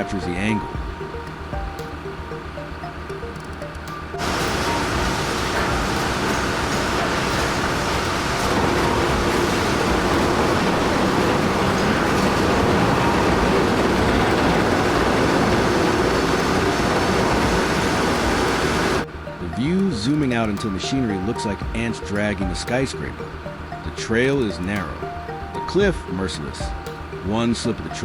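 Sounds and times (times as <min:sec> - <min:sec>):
heavy machinery rumbling: 0:04.2 - 0:19.0.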